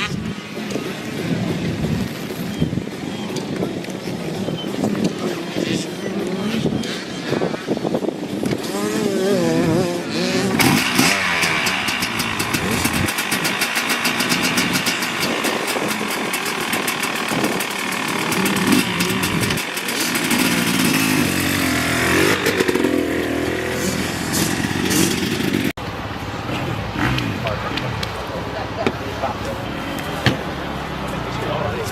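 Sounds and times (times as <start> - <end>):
dirt bike engine revving: 4.5 - 25.8, 26.4 - 28.0.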